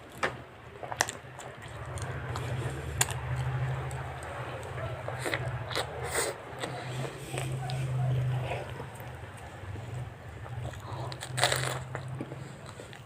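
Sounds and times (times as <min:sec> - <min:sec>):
steady low hum: 0:00.0 - 0:13.0
person chewing: 0:00.8 - 0:13.0
sharp crunches: 0:10.7 - 0:12.9.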